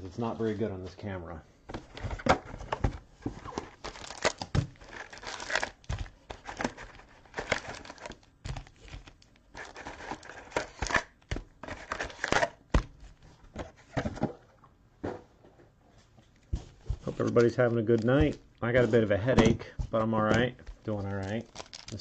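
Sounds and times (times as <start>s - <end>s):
plastic wrapping crinkling and tearing: 3.4s - 12.6s, 20.6s - 22.0s.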